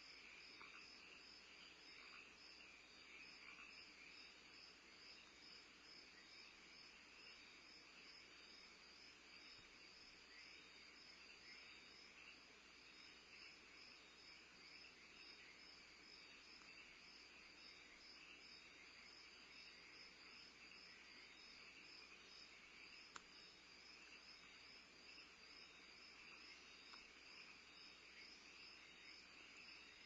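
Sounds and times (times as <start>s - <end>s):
crickets chirping: 0.0s - 30.0s
small click: 23.1s - 23.3s, 26.9s - 27.1s.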